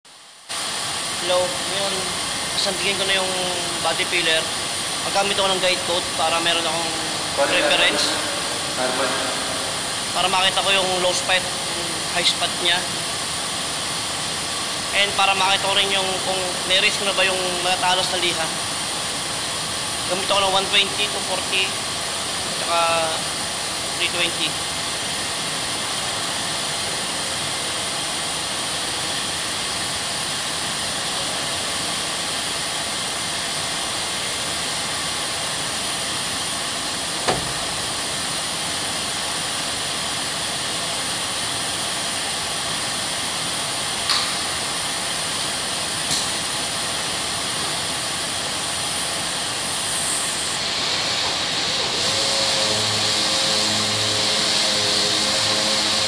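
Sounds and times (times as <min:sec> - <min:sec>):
high whine: 0:00.1 - 0:19.1, 0:19.9 - 0:56.0
power sander hissing: 0:49.9 - 0:56.0.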